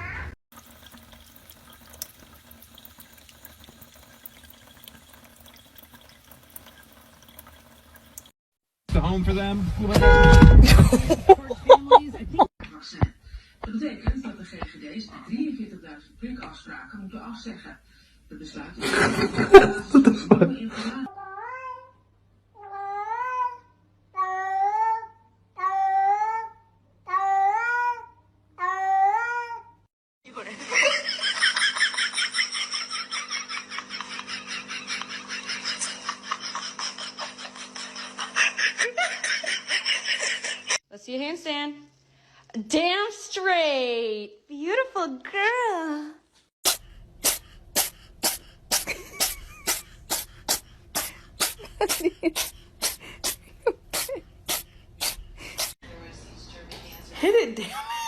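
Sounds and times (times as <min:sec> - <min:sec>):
tap water running into sink: 0:00.5 - 0:08.3.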